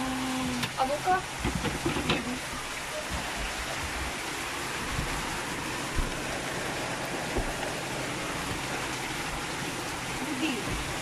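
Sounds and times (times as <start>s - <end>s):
heavy rain pouring: 0.0s - 11.0s
runoff water streaming: 0.0s - 11.0s
low thumps: 1.3s - 9.9s.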